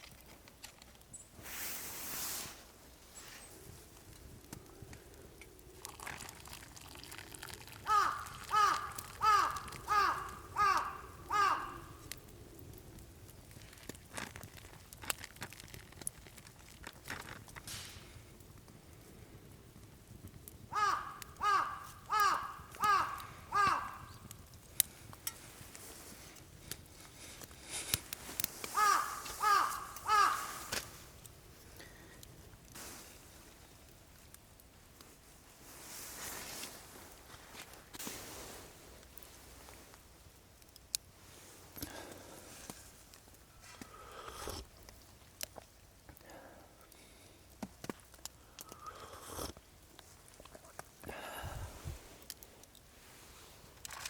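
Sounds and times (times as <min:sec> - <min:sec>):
small ticks: 0:06.8 - 0:17.6, 0:20.4 - 0:25.8
crow cawing: 0:07.8 - 0:12.2, 0:20.7 - 0:24.3, 0:28.7 - 0:31.0.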